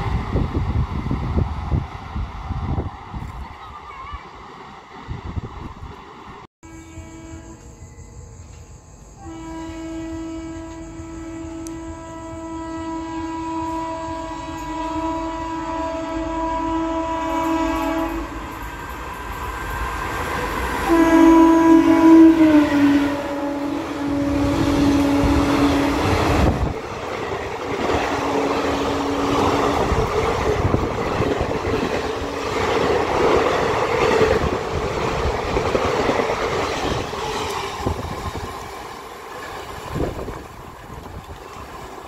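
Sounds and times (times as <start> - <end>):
train wheels rumbling on rails: 0.0 - 6.5, 7.4 - 42.0
locomotive horn: 6.6 - 8.0, 9.2 - 18.5, 20.8 - 26.7, 27.7 - 33.0.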